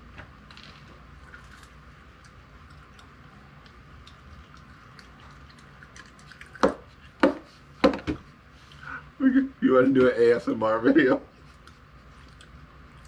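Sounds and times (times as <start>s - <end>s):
wet chewing mouth clicks: 1.2s - 7.0s, 11.5s - 13.0s.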